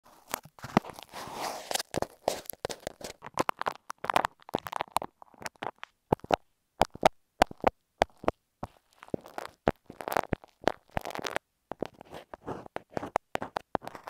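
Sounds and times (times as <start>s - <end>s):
scratchy rustle on microphone: 0.1s - 3.3s, 8.7s - 14.0s
sharp clicks pops and crackles: 1.8s - 12.0s.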